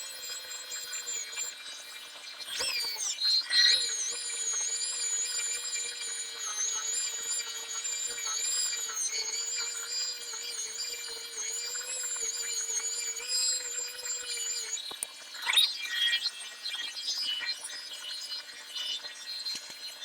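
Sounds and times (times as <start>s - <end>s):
power sander whining: 0.0s - 1.8s, 2.6s - 14.8s.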